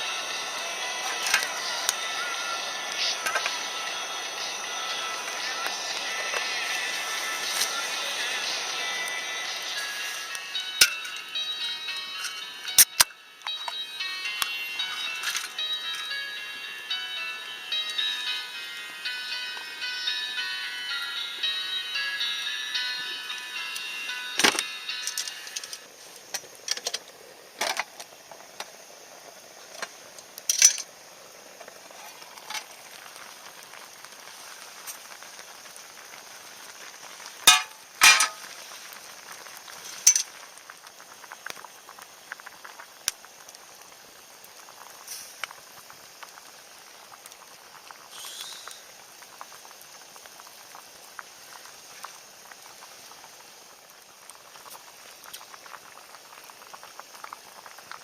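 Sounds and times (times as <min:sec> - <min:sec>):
campfire hissing: 0:00.0 - 0:58.0
fire crackling pops: 0:23.7 - 0:58.0.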